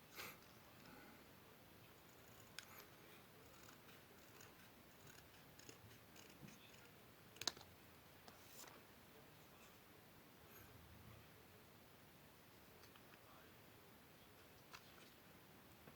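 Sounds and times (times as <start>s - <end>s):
paper being cut with snips: 3.5s - 6.9s.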